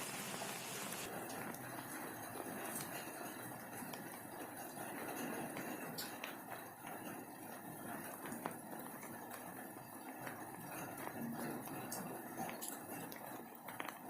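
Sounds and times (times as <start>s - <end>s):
steady rain: 0.0s - 11.9s.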